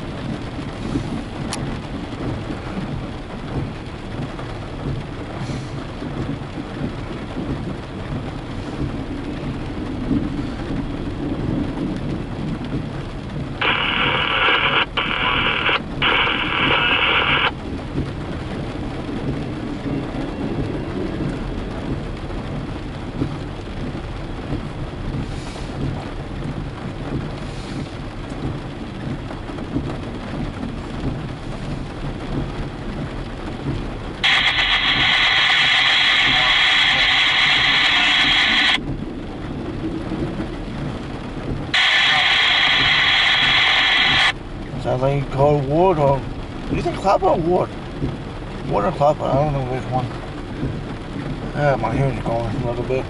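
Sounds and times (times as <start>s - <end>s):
low rumble: 0.0s - 45.2s
steady rain: 0.0s - 53.0s
scanner radio static burst: 13.6s - 17.6s, 34.2s - 38.8s, 41.8s - 44.4s.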